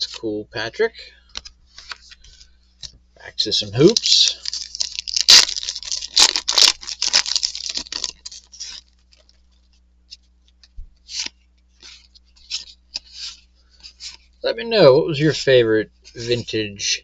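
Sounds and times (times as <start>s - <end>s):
foil wrapper crinkling and tearing: 3.7s - 9.8s.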